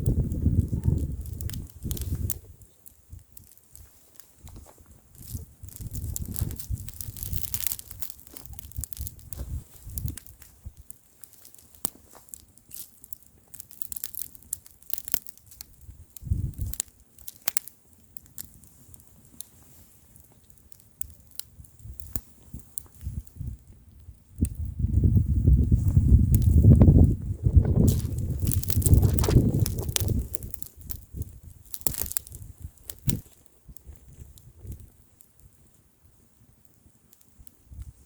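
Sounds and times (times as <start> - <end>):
wind rumbling on microphone: 0.0 - 10.9, 15.6 - 16.8, 21.4 - 35.7, 37.6 - 38.0
bonfire crackling: 0.0 - 38.0.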